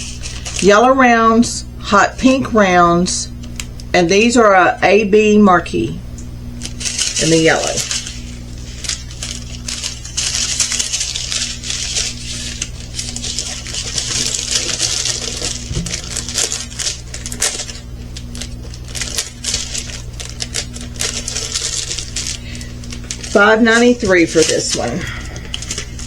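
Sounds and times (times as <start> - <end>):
plastic bags crinkling: 0.0 - 0.8, 6.6 - 26.0.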